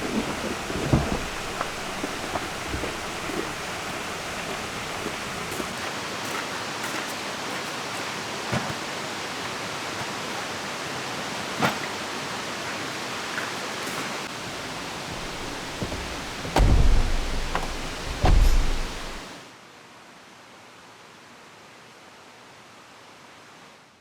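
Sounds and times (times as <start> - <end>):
soft low thumps: 0.0 - 4.3, 14.9 - 19.2
falling rain: 0.0 - 6.2, 14.2 - 19.2
flowing river: 0.0 - 19.3.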